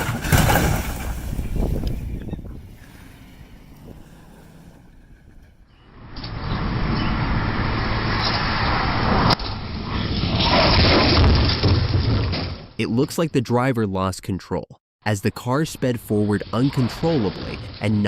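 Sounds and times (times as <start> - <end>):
car engine and road noise: 0.0 - 10.4.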